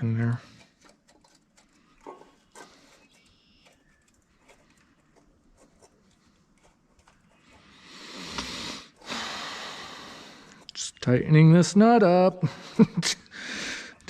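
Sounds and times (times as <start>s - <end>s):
faint clicks and light knocks: 0.5s - 7.6s.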